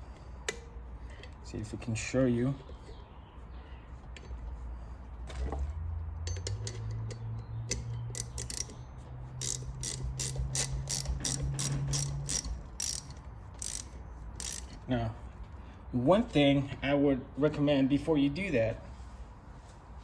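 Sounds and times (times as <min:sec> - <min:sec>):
socket wrench ratchet clicking: 0:06.3 - 0:08.8, 0:09.4 - 0:14.8.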